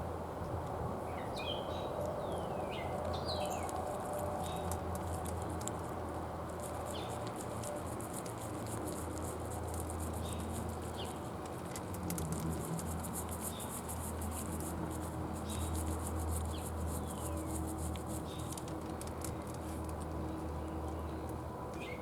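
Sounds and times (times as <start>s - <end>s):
steady low hum: 2.8s - 21.7s
deer crunching bird seed: 8.0s - 14.9s.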